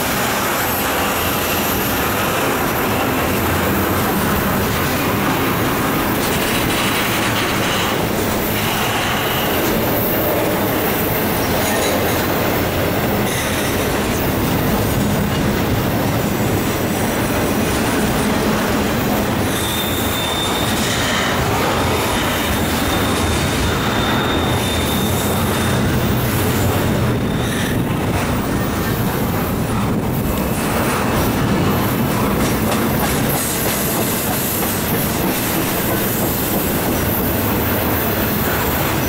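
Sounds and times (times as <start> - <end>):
train wheels rumbling on rails: 0.0 - 39.0
high wheel squeals: 19.4 - 27.8.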